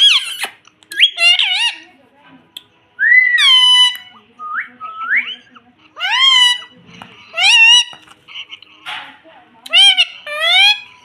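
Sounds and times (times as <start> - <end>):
parrot whistling calls: 0.0 - 1.8, 3.0 - 5.4, 7.3 - 8.0, 9.7 - 10.9.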